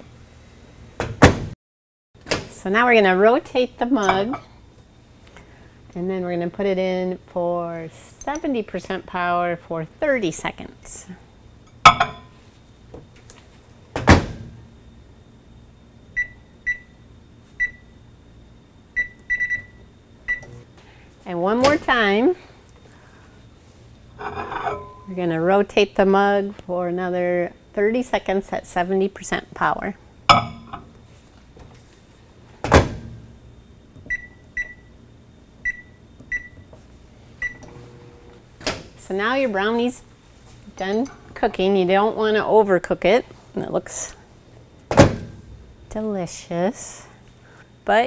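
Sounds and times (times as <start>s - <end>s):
microwave door thud: 1.0s - 1.6s, 14.0s - 14.6s, 32.6s - 33.3s, 44.9s - 45.4s.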